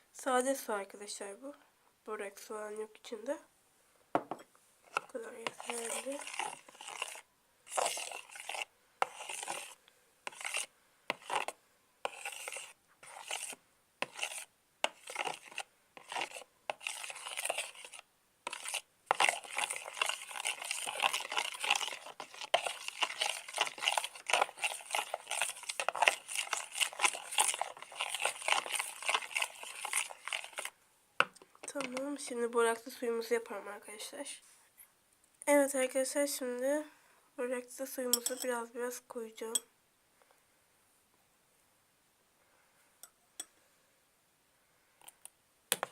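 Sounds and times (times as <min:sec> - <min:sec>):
glue and water being stirred: 0:04.2 - 0:33.0, 0:45.0 - 0:45.9.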